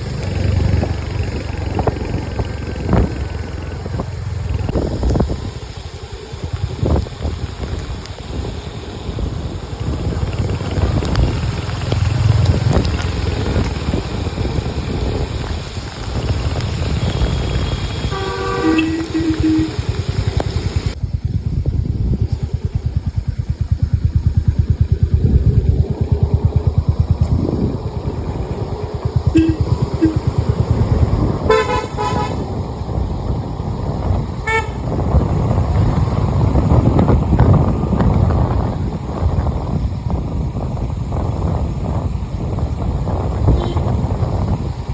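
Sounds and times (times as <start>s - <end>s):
vehicle rumbling on road: 0.0s - 44.9s
wind buffeting microphone: 0.0s - 44.9s
vehicle horn honks: 17.1s - 19.9s, 29.3s - 30.3s, 31.5s - 32.4s, 34.4s - 34.8s, 43.5s - 44.0s.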